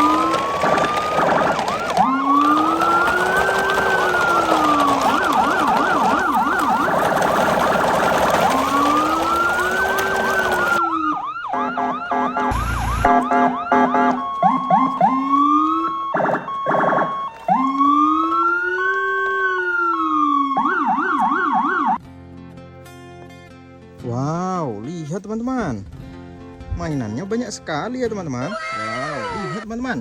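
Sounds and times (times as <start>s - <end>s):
emergency vehicle sirens: 0.0s - 22.0s.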